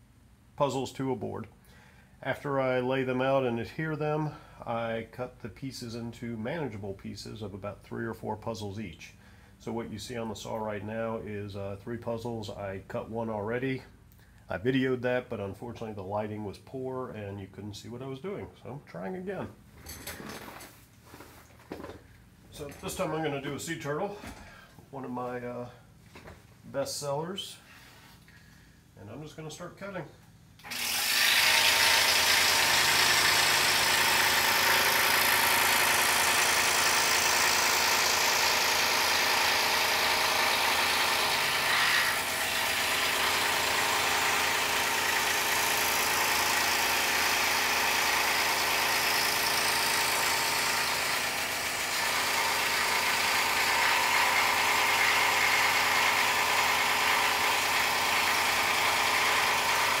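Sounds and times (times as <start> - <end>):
scroll saw cutting wood: 30.6 - 60.0.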